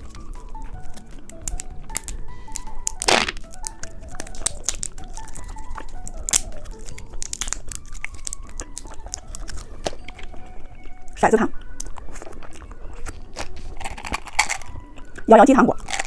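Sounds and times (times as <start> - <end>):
plastic wrapper crinkling and tearing: 0.0 - 10.3, 11.7 - 14.8, 15.8 - 16.0
light background music: 0.0 - 16.0.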